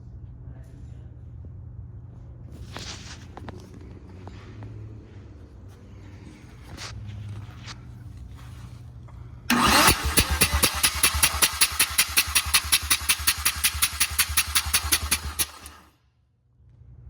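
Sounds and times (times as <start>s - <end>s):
engine cranking by starter motor: 9.5s - 15.9s.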